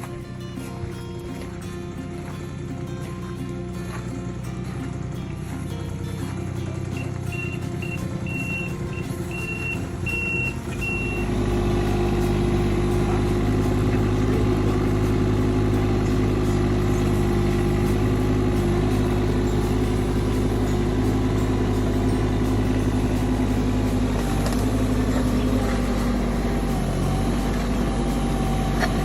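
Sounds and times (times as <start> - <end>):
excavator engine running: 0.0 - 29.0
high electronic warning beeps: 6.9 - 13.0.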